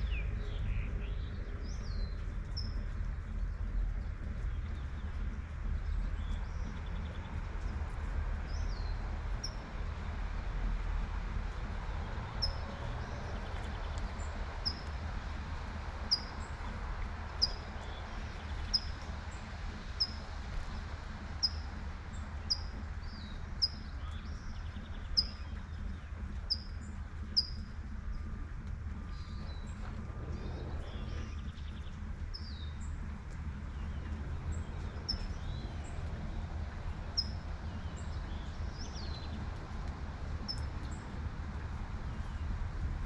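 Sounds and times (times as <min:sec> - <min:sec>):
distant traffic rumble: 0:00.0 - 0:43.0
bird chirping: 0:22.4 - 0:28.3, 0:28.9 - 0:36.3.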